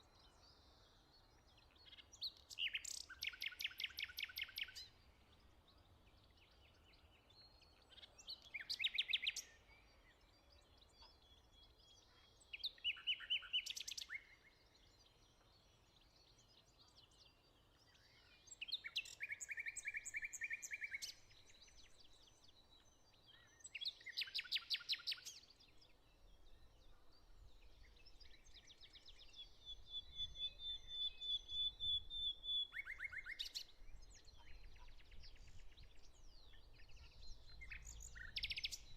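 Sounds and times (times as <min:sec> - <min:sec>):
songbirds trilling: 0:32.8 - 0:38.9.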